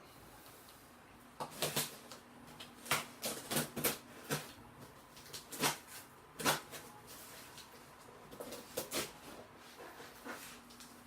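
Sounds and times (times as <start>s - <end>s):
cardboard crackling and scraping: 2.8s - 11.0s.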